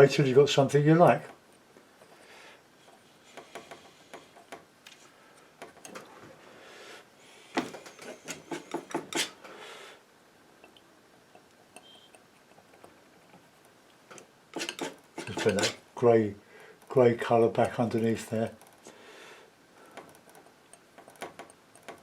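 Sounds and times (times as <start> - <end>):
palette knife scraping paint: 8.0 - 9.4, 14.6 - 15.8.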